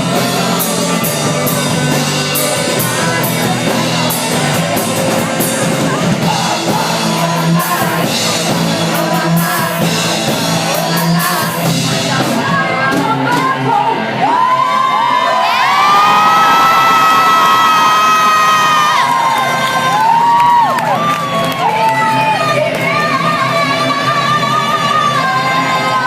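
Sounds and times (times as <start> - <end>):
live rock band with singing: 0.0 - 26.0
audience shouting: 14.2 - 23.0.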